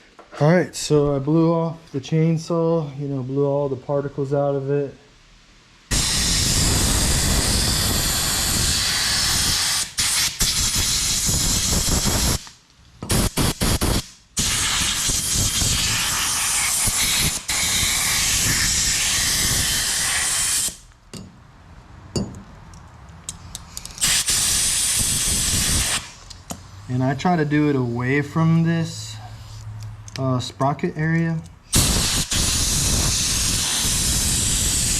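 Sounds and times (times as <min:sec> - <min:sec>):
compressed air blow gun blasting: 0:05.9 - 0:12.5, 0:13.1 - 0:20.8, 0:24.0 - 0:26.2, 0:31.7 - 0:34.9.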